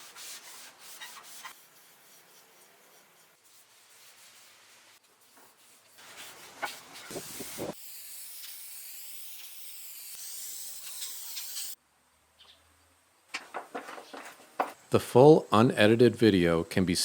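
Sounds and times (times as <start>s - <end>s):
spray hissing: 6.8s - 11.8s.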